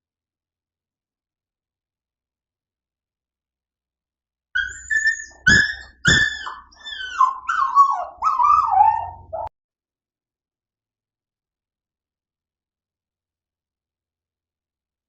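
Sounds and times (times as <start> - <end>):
dog whining: 4.6 - 9.5.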